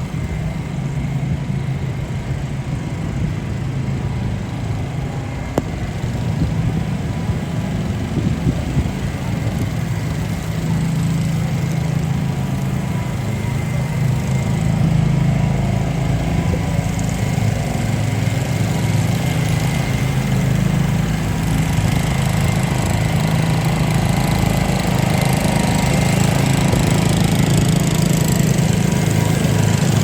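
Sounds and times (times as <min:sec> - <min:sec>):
vehicle engine humming: 0:00.0 - 0:30.0.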